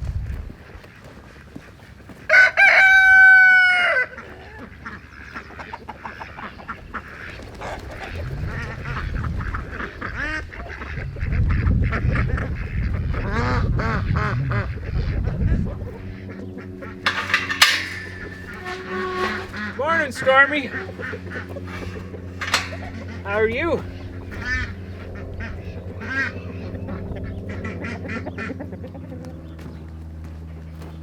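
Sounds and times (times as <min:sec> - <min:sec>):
chickens clucking: 0:00.9 - 0:12.6, 0:16.3 - 0:26.4
rooster crowing: 0:02.3 - 0:04.1
ducks quacking: 0:03.7 - 0:29.8
sharp clatter: 0:16.8 - 0:25.0.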